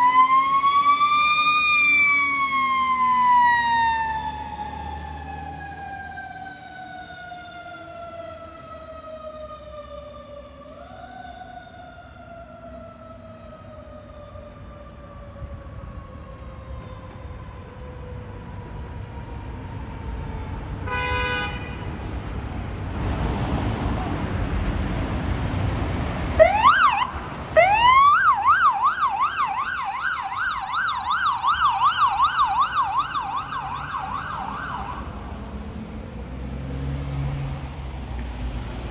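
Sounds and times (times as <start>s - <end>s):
vehicle horn blast: 20.9s - 21.9s
loud vehicle engine: 21.8s - 28.2s, 31.3s - 38.9s
electronic siren whooping and yelping: 26.4s - 35.1s
mechanical siren winding down: 26.4s - 35.2s.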